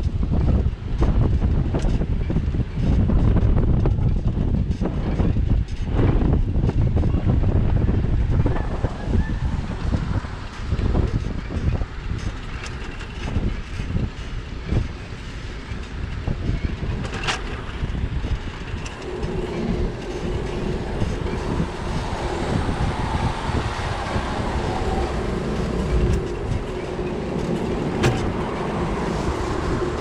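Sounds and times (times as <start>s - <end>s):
wind buffeting microphone: 0.0s - 30.0s
passing vehicle motor hum: 6.9s - 12.0s, 18.1s - 30.0s
wet city street noise: 6.9s - 30.0s.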